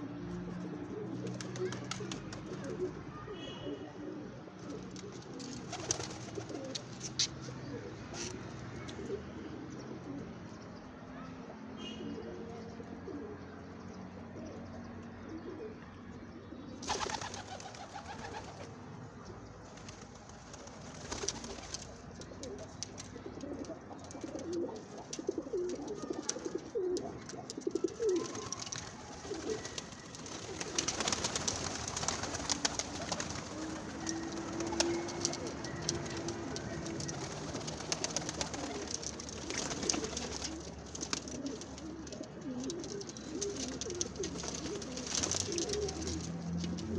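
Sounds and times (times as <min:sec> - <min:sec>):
doves cooing: 0:00.0 - 0:10.6, 0:11.8 - 0:46.9
birds rustling and clicking: 0:04.6 - 0:07.5, 0:16.8 - 0:18.7, 0:19.5 - 0:46.9.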